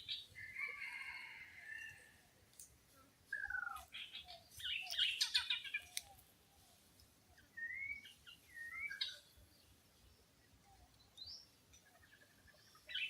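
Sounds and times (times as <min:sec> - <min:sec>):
whistled bird calls: 0:07.4 - 0:09.2.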